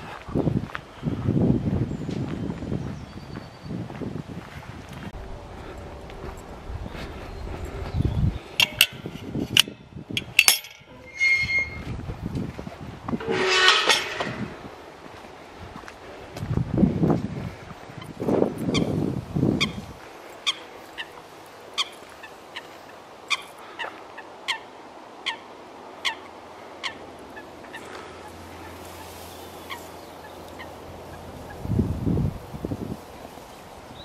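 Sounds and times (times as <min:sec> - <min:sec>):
wind buffeting microphone: 0:00.0 - 0:21.3, 0:28.5 - 0:34.0
bird calling: 0:20.4 - 0:31.6.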